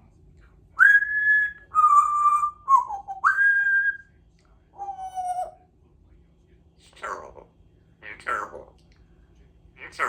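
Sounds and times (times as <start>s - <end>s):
parrot whistling notes: 0.8s - 4.0s.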